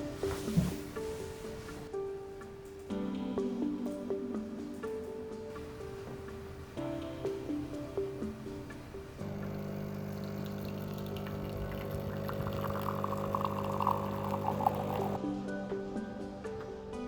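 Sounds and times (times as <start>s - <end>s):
steady low hum: 5.5s - 15.2s
water pouring and bubbling: 8.4s - 15.2s.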